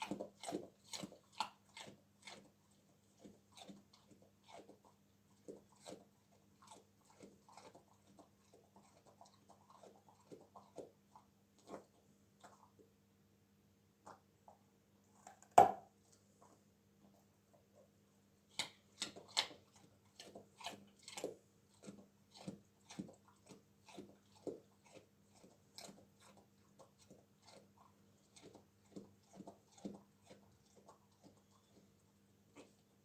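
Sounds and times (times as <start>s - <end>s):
dog crunching a carrot: 0.0s - 12.8s, 16.4s - 33.0s.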